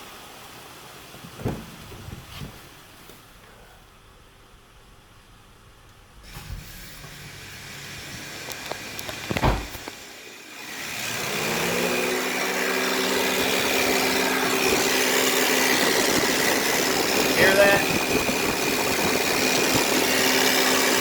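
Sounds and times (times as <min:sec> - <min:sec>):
loud thump: 0:01.4 - 0:02.1, 0:09.3 - 0:09.8
power steering pump whining: 0:06.2 - 0:21.0.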